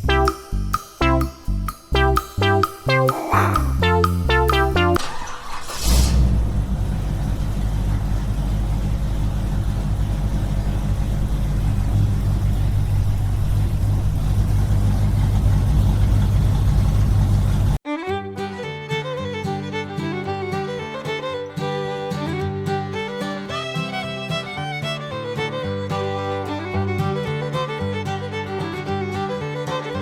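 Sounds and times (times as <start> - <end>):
background music: 0.0 - 5.0
small engine droning: 5.0 - 17.8.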